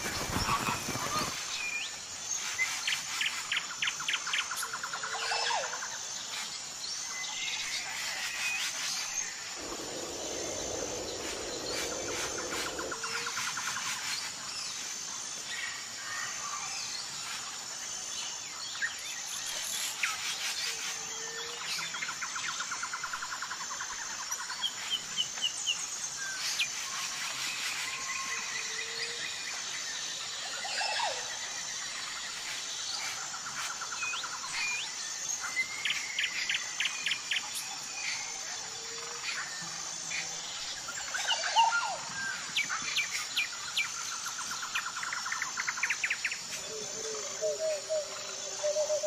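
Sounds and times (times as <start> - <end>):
birds chirping and trilling: 0.0 - 15.9, 26.5 - 49.0
low rushing noise: 9.4 - 13.7.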